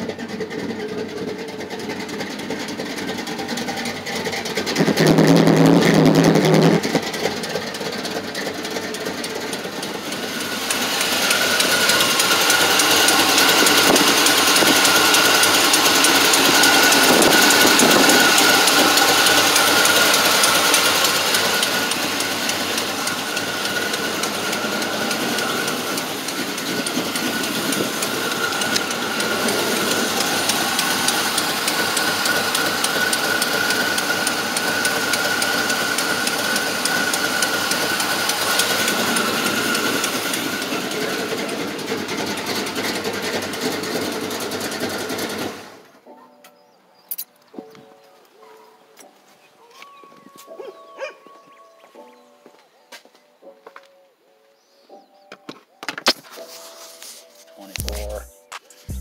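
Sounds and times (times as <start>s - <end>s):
engine idling with ticking: 0.0s - 45.9s, 57.7s - 59.0s.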